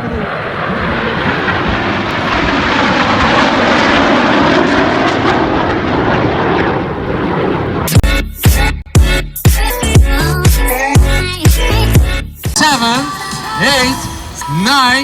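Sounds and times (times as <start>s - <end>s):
airplane flying past: 0.0s - 8.0s.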